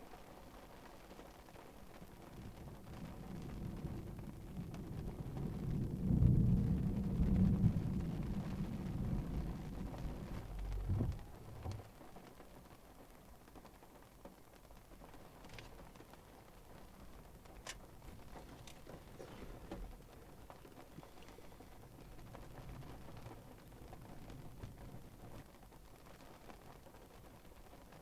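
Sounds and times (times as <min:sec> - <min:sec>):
thunder rumbling: 0:02.0 - 0:12.2, 0:14.8 - 0:26.0.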